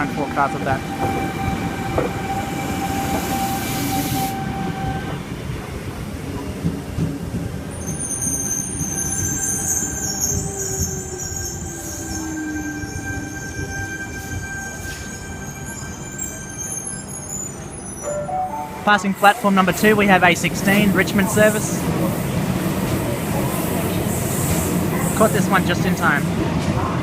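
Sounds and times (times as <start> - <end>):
train rumble and braking whine: 0.0 - 27.0.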